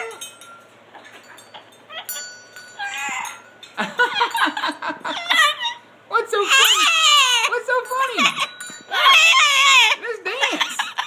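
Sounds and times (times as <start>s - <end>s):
high ringing tone: 0.0s - 4.6s
parrot calling: 1.9s - 3.4s, 5.0s - 11.0s.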